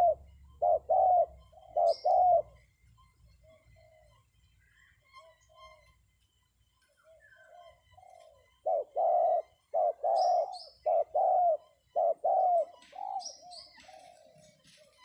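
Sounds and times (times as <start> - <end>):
dove cooing: 0.0 - 2.6, 7.0 - 15.0
small bird chirping: 0.0 - 15.0.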